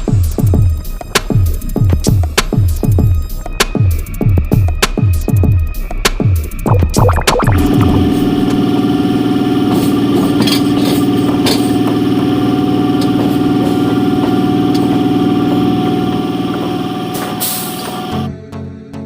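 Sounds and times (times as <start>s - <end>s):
electric train humming: 7.6s - 18.3s.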